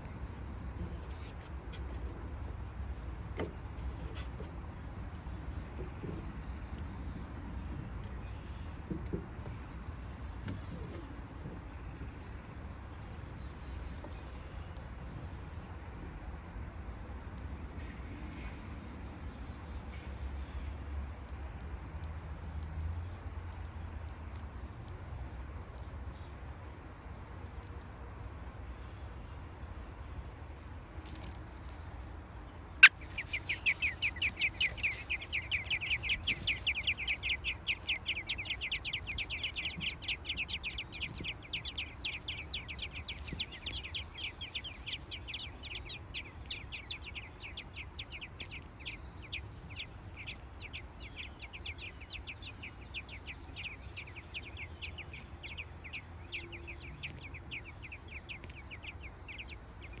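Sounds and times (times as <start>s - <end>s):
nestlings chirping for food: 30.7s - 60.0s.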